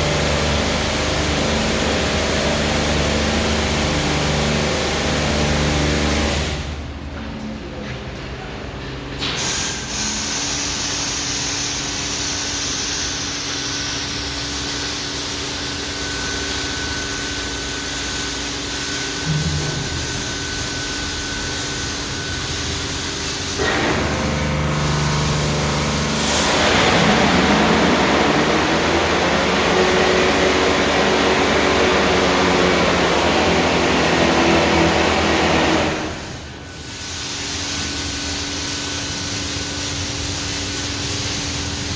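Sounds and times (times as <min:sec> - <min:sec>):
high-pressure water jets spraying: 0:00.0 - 0:06.6, 0:20.0 - 0:41.9
motor and pump hum: 0:00.0 - 0:07.3, 0:09.2 - 0:41.9.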